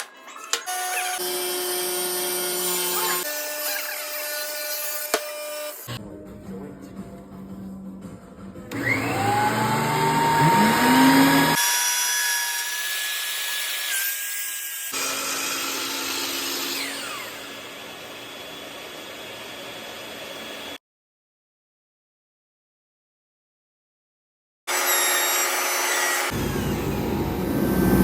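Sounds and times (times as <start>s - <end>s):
power tool motor whine: 8.7s - 12.7s, 14.9s - 20.8s.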